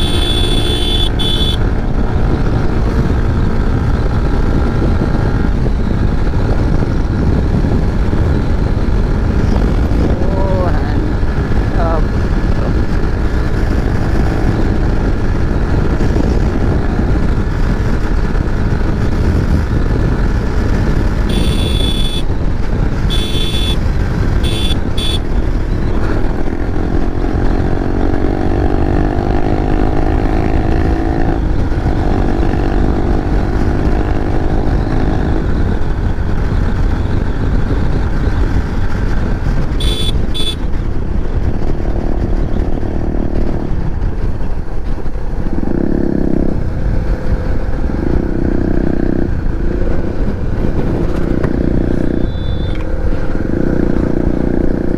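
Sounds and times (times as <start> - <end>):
short horn beeps: 0.0 - 1.6, 21.3 - 22.3, 23.1 - 23.8, 24.4 - 25.2, 39.8 - 40.6, 52.2 - 52.8
motorcycle engine drone: 0.0 - 54.9
wind rush on microphone: 0.0 - 54.9.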